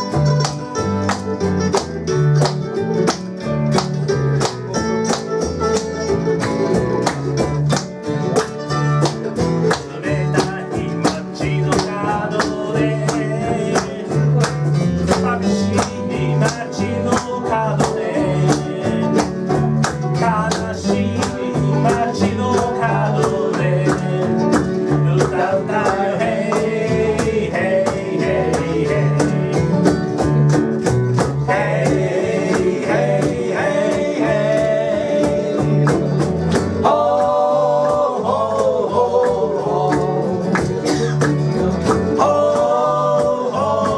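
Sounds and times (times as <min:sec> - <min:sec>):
acoustic guitar strumming: 0:00.0 - 0:43.9
person singing: 0:09.7 - 0:30.0, 0:31.4 - 0:43.9.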